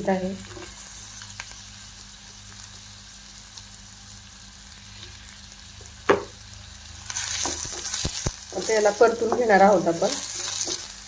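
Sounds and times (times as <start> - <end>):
vegetables sizzling in oil: 0.0 - 11.0
wooden spatula knocking pan: 6.1 - 6.3.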